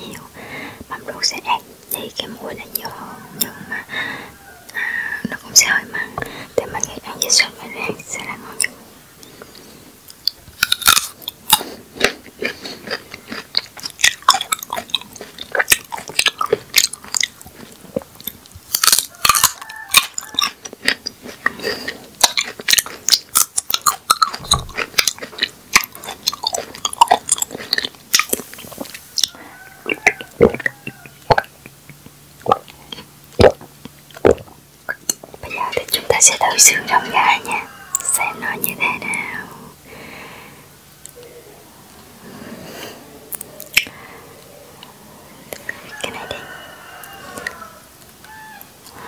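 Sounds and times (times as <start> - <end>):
crisp chewing crunches: 8.5 - 37.1.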